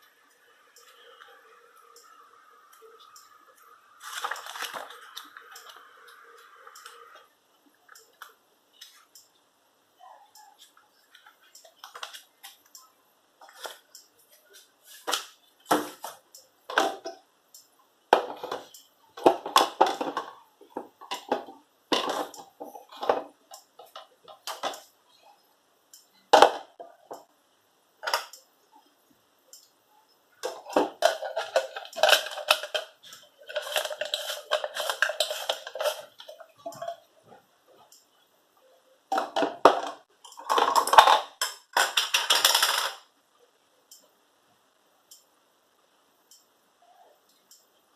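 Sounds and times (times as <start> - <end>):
peppercorns crunching in a blender: 30.8 - 36.6.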